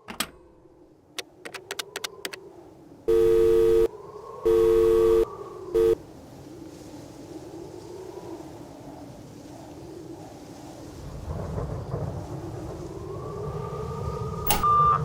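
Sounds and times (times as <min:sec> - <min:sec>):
sharp clicks: 0:01.2 - 0:02.4, 0:14.5 - 0:14.7
telephone call tone beeps: 0:03.1 - 0:03.9, 0:04.5 - 0:06.0, 0:14.5 - 0:15.0.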